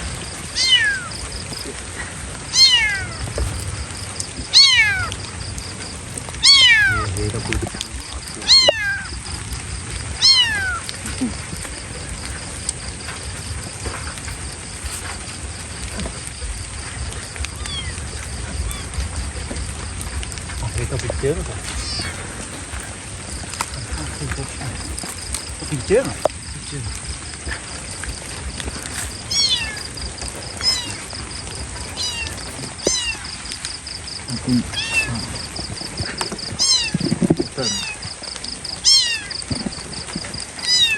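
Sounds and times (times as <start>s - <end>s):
rain hissing: 0.0s - 40.9s
kitten meowing: 0.6s - 1.2s, 2.5s - 3.2s, 4.5s - 5.1s, 6.4s - 7.2s, 7.8s - 9.2s, 10.2s - 11.0s, 17.4s - 19.0s, 21.7s - 22.2s, 29.3s - 30.0s, 30.6s - 31.1s, 32.0s - 33.4s, 34.7s - 35.3s, 36.6s - 38.1s, 38.8s - 39.4s, 40.6s - 40.9s.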